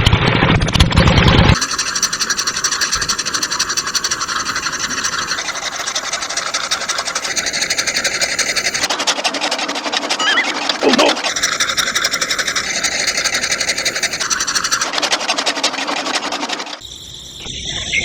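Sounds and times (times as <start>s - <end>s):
fast rattling rasp: 1.5s - 10.2s, 11.0s - 16.8s
small electric motor whining: 1.5s - 15.7s.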